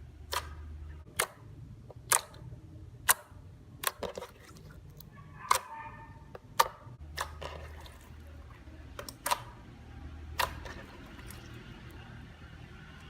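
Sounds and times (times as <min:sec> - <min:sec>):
slime wet clicks and pops: 0:02.0 - 0:02.4, 0:09.0 - 0:09.5.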